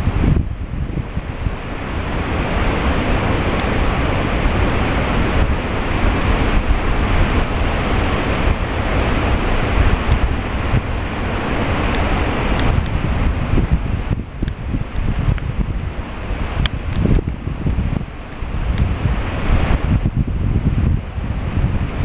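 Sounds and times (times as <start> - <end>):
waterfall roaring: 0.0 - 22.0
wind buffeting microphone: 0.0 - 22.0.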